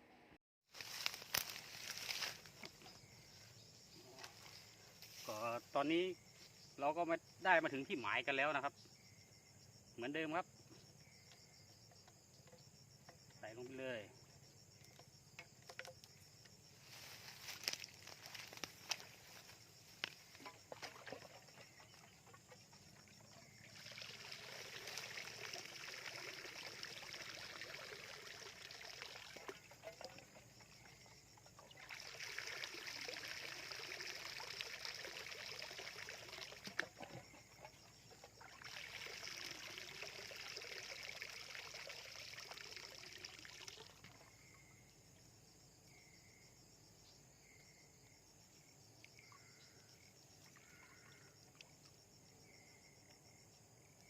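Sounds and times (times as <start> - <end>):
water sloshing and trickling: 0.7 - 5.7, 14.8 - 44.6.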